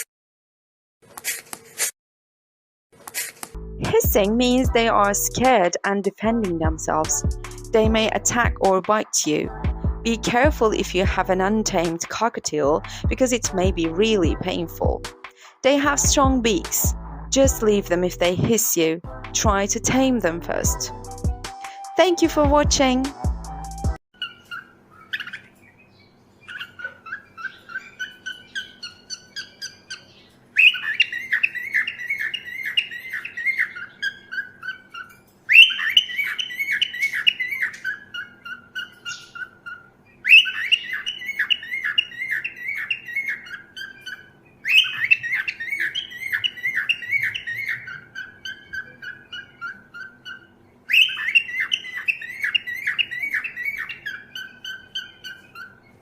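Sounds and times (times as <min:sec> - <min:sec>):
cockatiel chirping: 0:24.2 - 0:56.0.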